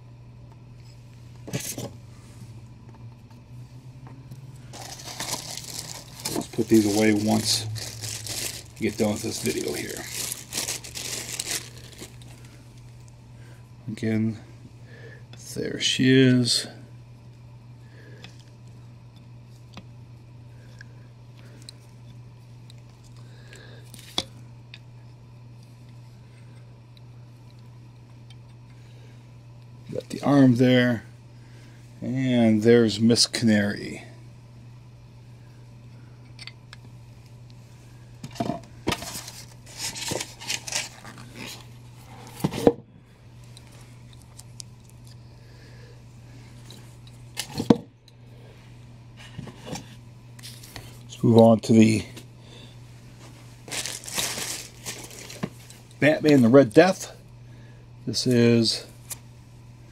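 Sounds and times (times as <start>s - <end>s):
steady low hum: 0.0s - 59.9s
plastic packaging rustling: 4.7s - 12.9s, 38.9s - 41.7s, 53.5s - 55.8s.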